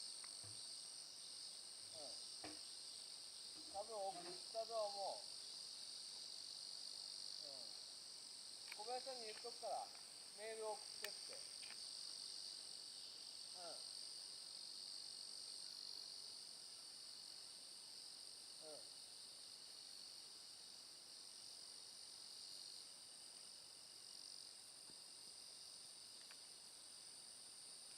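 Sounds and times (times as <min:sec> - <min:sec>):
insects trilling: 0:00.0 - 0:27.9
person speaking: 0:03.7 - 0:05.2, 0:08.8 - 0:11.5.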